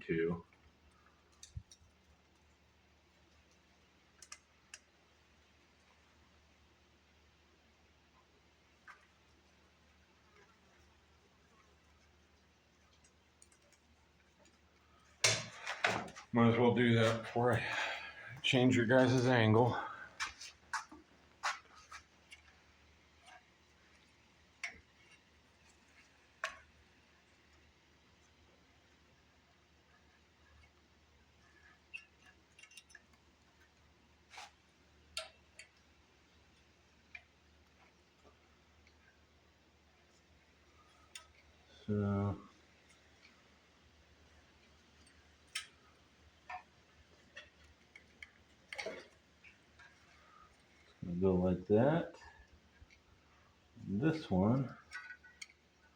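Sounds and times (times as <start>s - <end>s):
metal parts clicking and tapping: 32.0s - 33.1s, 54.8s - 55.6s
tools and metal parts clicking: 32.5s - 33.1s.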